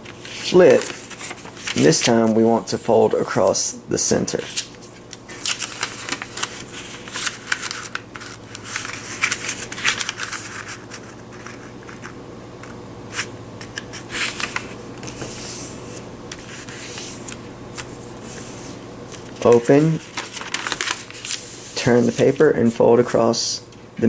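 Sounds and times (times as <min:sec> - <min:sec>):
paper crinkling: 0:00.0 - 0:03.5, 0:04.3 - 0:23.3
fingers creasing paper: 0:04.4 - 0:12.1, 0:19.4 - 0:22.5.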